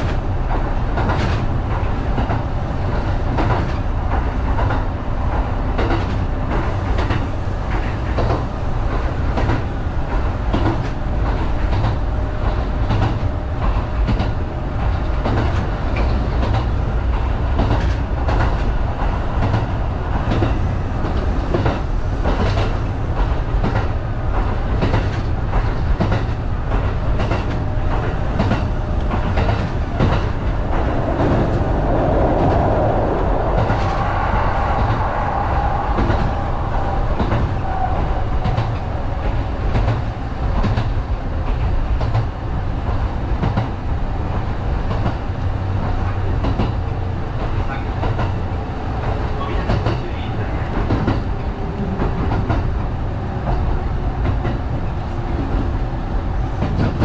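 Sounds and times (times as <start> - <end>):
wheels clicking over rail joints: 0.0 - 32.7
train rumble: 0.0 - 57.0.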